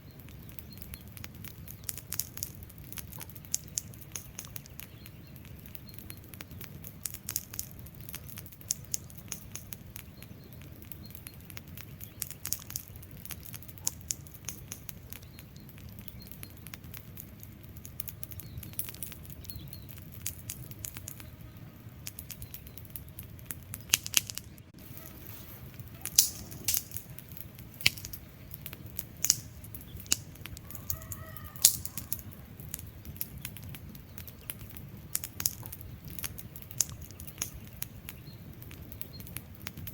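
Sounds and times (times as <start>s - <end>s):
faint pitched chirp: 0.0s - 17.3s
logs crackling and popping: 0.0s - 39.9s
wood fire burning: 0.0s - 39.9s.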